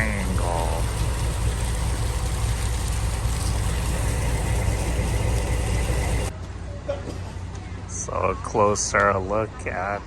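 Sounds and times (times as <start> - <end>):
engine droning: 0.0 - 6.4.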